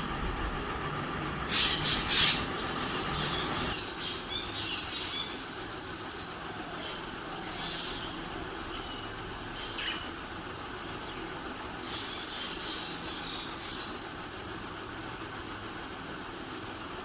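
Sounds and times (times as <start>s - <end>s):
steady background noise: 0.0s - 17.0s
birds chirping: 1.4s - 17.0s
birds squawking: 1.5s - 5.4s, 6.6s - 10.1s.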